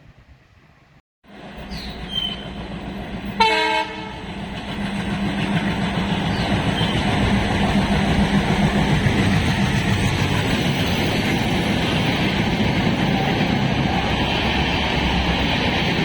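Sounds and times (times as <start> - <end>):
train engine approaching: 1.3 - 16.0
locomotive horn blast: 3.4 - 4.3.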